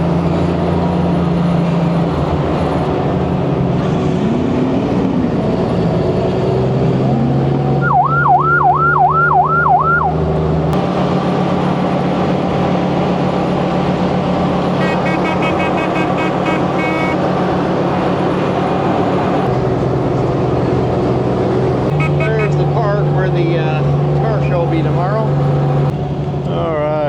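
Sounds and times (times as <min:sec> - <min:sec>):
truck engine drone: 0:00.0 - 0:27.0
siren yelping: 0:07.8 - 0:10.2, 0:14.8 - 0:17.3.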